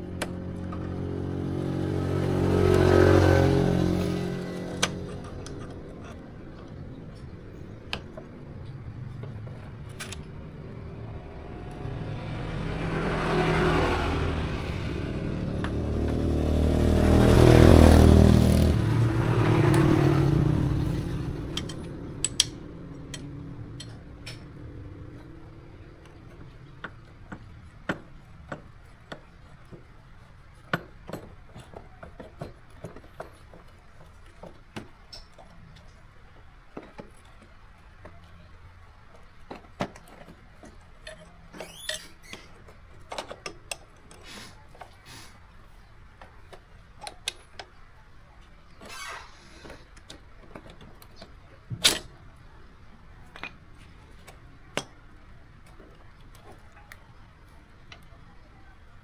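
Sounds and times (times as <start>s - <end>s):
motorcycle engine revving: 0.0s - 6.2s, 9.6s - 26.8s.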